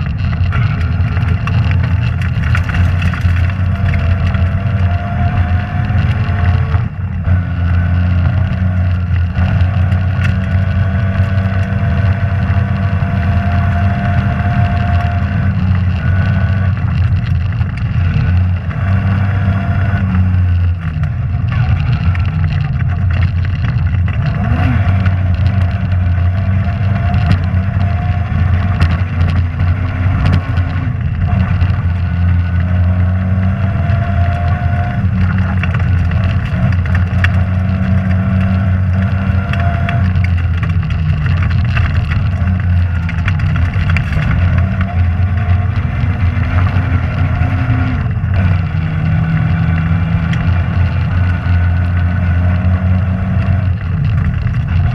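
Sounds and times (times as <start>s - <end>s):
rally car engine running hard: 0.0s - 54.9s
sharp clicks and knocks: 0.0s - 54.9s.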